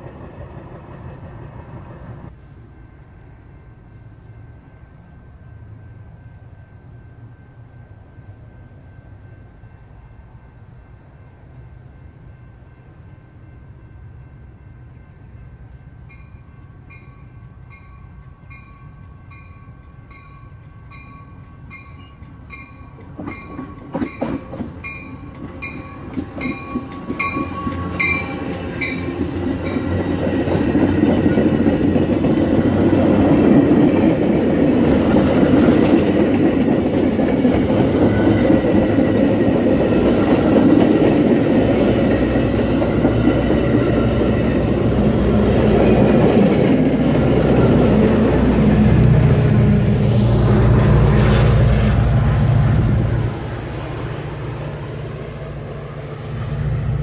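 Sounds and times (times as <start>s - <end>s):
train cars rumbling past: 0.0s - 57.0s
train bell ringing: 2.6s - 49.0s
train wheels clicking over rail joints: 16.6s - 49.4s.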